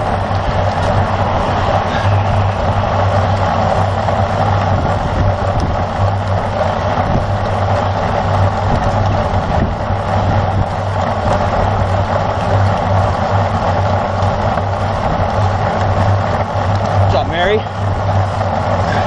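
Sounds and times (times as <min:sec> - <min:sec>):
bicycle drivetrain whirring and clicking: 0:00.0 - 0:19.0
wind rushing over microphone: 0:00.0 - 0:19.0.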